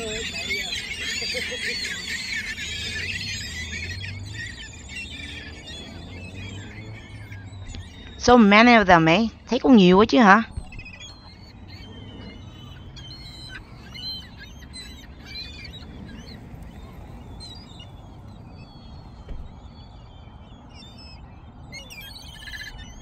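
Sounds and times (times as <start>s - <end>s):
seagulls calling: 0.0s - 23.0s.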